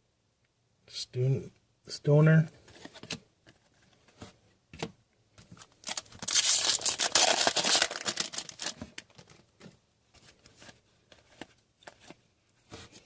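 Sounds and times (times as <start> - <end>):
foil pack tearing and crinkling: 5.8 - 9.2.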